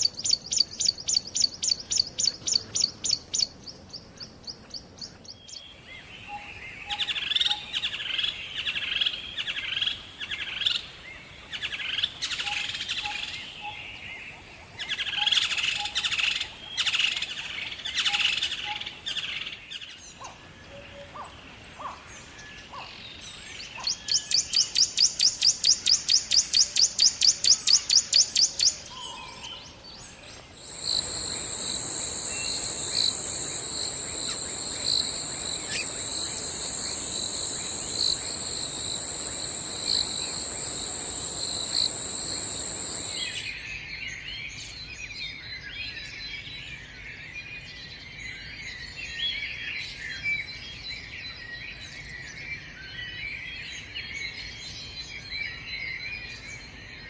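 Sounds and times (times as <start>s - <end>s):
small birds chirping: 0.0s - 10.6s, 14.9s - 43.5s
fast repeated high call: 30.6s - 43.4s
high-pitched insect drone: 30.6s - 43.5s.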